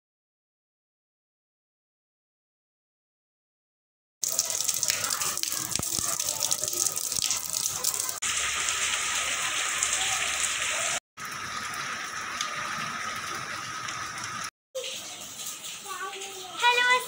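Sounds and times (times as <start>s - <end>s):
heavy rain splashing on ground: 4.2s - 17.0s.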